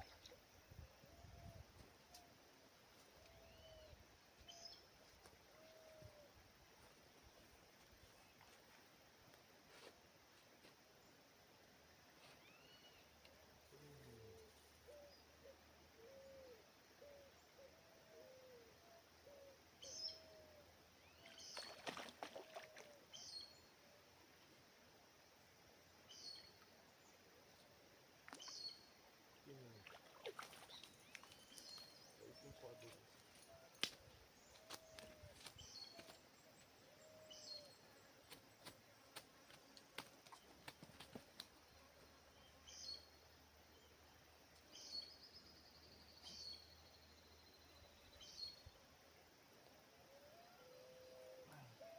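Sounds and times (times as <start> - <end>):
faint bird calls: 12.2 - 24.0, 28.3 - 38.8, 50.1 - 51.9.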